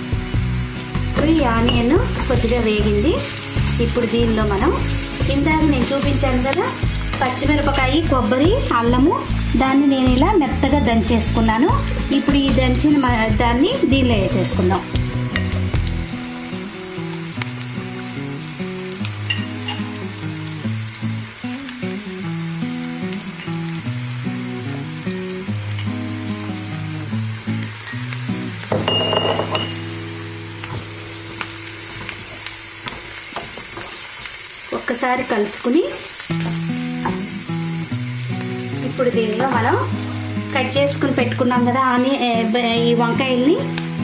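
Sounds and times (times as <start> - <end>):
onions sizzling in hot oil: 0.0 - 44.0
spatula stirring in pan: 30.6 - 34.5.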